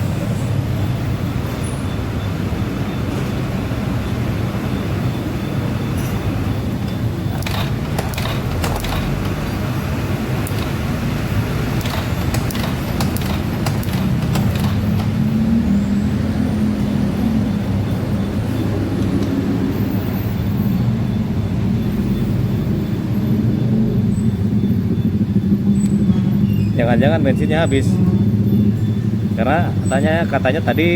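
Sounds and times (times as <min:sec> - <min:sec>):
engine running: 0:00.0 - 0:30.0
clicks and knocks: 0:06.8 - 0:15.2.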